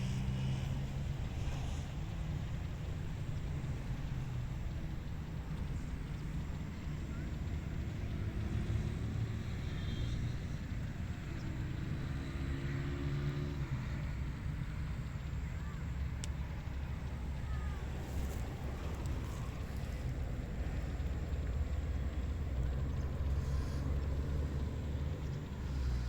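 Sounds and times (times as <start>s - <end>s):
faint hum: 13.6s - 26.0s.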